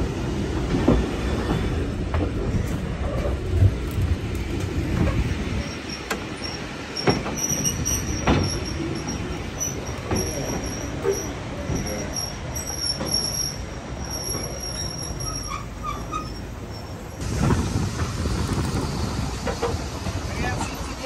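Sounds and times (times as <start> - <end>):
train rumbling: 0.0 - 21.0
faint high wheel squeal: 5.6 - 17.2.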